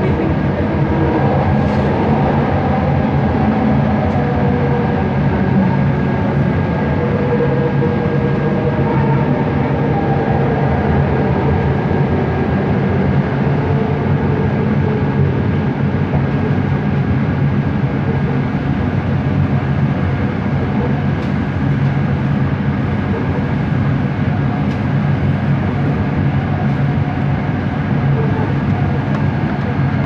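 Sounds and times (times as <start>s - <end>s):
metro train rumble: 0.0s - 30.0s.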